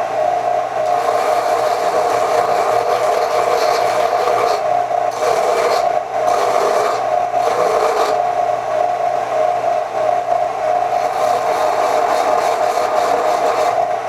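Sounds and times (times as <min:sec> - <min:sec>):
rotary tool grinding metal: 0:00.8 - 0:08.3, 0:10.9 - 0:13.9.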